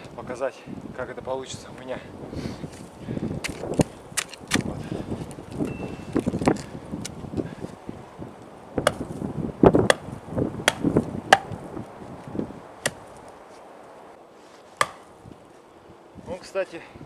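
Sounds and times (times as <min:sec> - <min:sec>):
axe chopping log: 0:08.8 - 0:09.1, 0:09.7 - 0:11.6, 0:12.8 - 0:13.1, 0:14.8 - 0:15.1.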